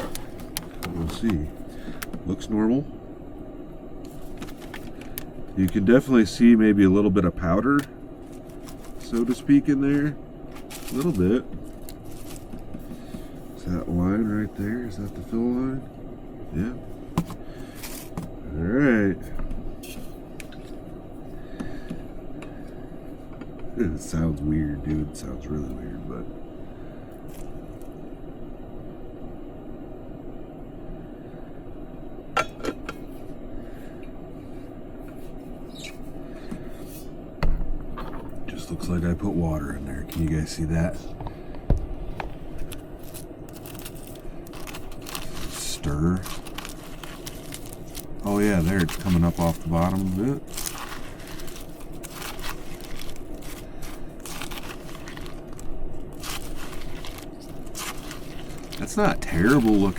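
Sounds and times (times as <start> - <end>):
steady low hum: 0.0 - 59.9
spoon scraping and crunching cereal: 43.0 - 59.9.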